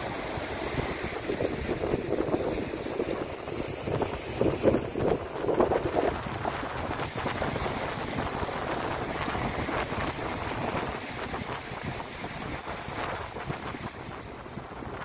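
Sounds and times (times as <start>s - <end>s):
ocean surf washing on shore: 0.0s - 15.0s
wind rumbling on microphone: 0.0s - 15.0s.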